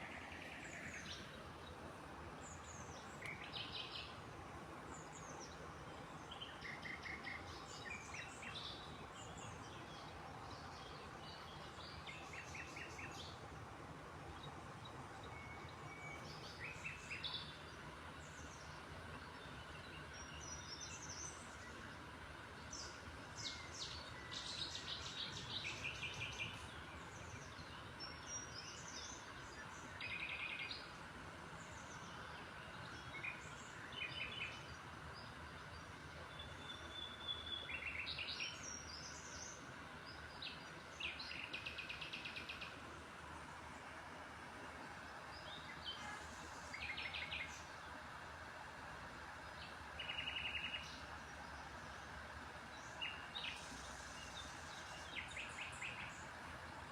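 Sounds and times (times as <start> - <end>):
small birds chirping: 0.0 - 4.2, 31.6 - 43.9, 44.6 - 48.6, 49.2 - 56.9.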